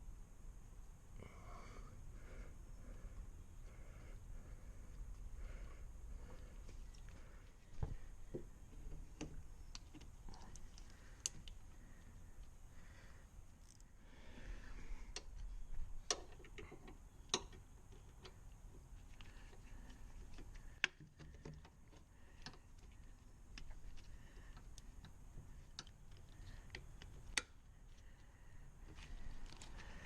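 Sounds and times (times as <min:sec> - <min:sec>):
hand tools clicking and tapping: 0:16.0 - 0:27.6.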